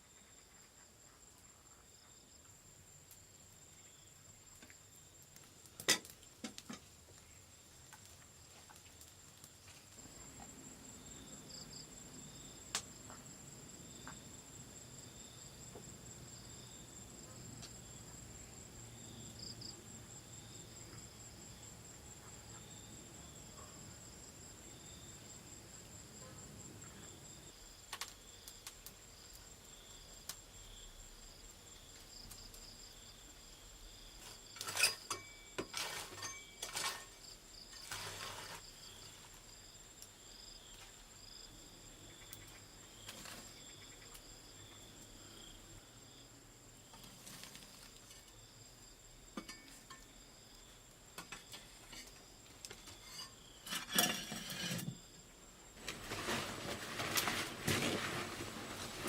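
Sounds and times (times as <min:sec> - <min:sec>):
insects pulsing calls: 0:38.6 - 0:47.4.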